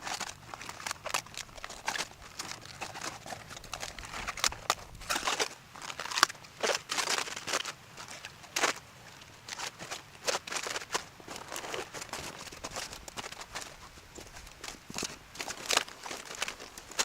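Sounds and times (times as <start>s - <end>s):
rustling and crinkling: 0.0s - 17.0s.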